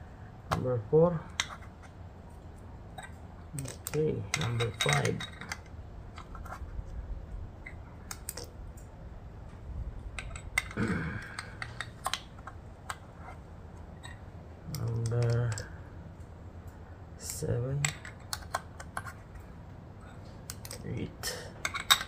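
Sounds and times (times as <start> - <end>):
small metal parts clicking: 3.0 - 6.6, 7.6 - 8.9, 10.1 - 13.0, 13.9 - 15.7, 17.2 - 19.5, 20.1 - 22.0.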